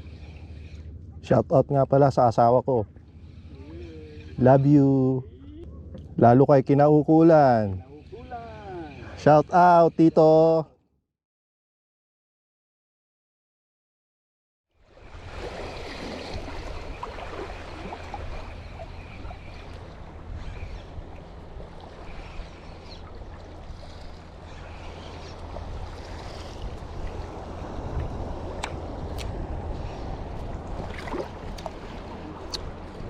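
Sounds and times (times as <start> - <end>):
water splashing along hull: 0.0 - 1.3, 2.4 - 4.8, 14.8 - 33.0
motorboat engine running: 2.0 - 6.4, 15.0 - 33.0
wind on microphone: 15.1 - 33.0.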